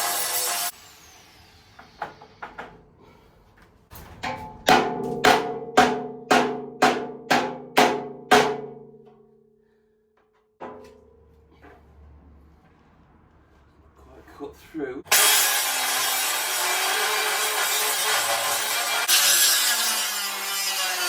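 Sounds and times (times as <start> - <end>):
cutting disc on steel: 0.0 - 2.0, 15.1 - 21.0.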